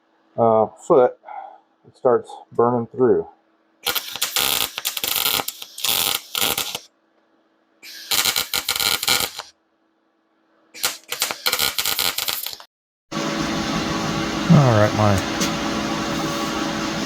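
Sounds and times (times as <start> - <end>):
welding arc crackling: 3.8 - 6.9, 7.8 - 9.5, 10.8 - 12.7.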